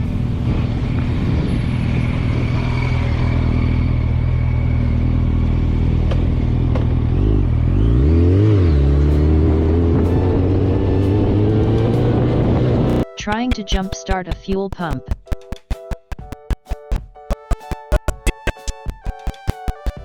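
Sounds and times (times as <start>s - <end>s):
vehicle engine revving: 0.4s - 13.1s.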